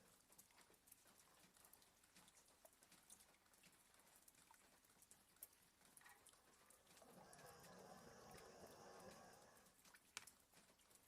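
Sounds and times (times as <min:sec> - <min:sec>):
light ticks of rain: 0:00.0 - 0:11.0
dog snoring softly: 0:06.6 - 0:09.9.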